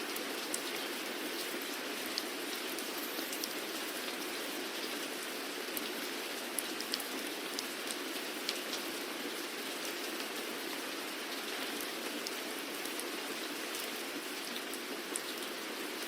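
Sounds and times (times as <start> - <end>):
steady rain hiss: 0.0 - 16.0
raindrops ticking on hard surface: 1.4 - 4.2.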